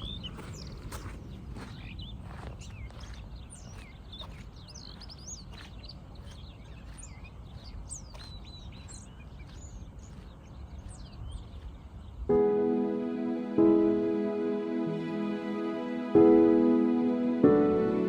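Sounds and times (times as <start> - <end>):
songbirds chirping and singing: 0.0 - 12.4.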